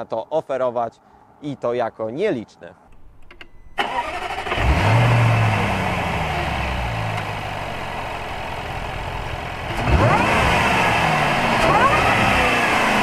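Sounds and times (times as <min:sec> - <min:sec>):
car engine starting and idling: 0:02.9 - 0:13.0.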